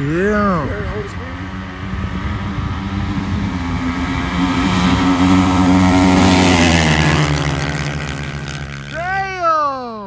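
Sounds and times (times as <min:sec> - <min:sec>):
dirt bikes at high revs: 0:00.0 - 0:10.0.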